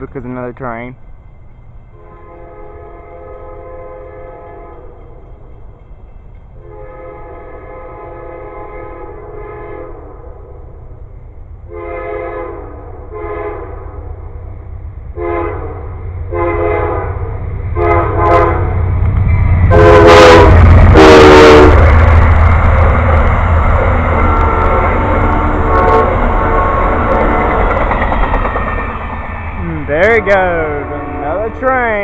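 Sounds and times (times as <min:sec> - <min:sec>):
passing train rumble: 0:00.0 - 0:32.0
locomotive horn blasts: 0:02.0 - 0:04.9, 0:06.6 - 0:10.2, 0:11.7 - 0:14.0, 0:15.2 - 0:18.8, 0:19.7 - 0:21.9, 0:24.2 - 0:27.6, 0:30.0 - 0:31.8.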